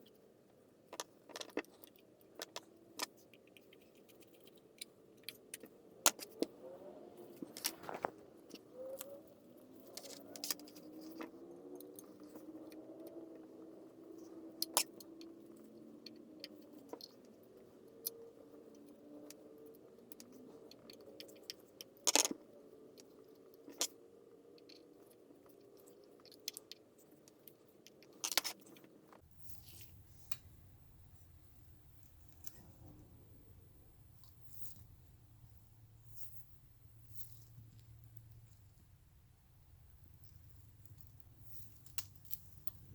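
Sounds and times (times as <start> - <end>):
faint wavering hum: 28.8 - 42.9.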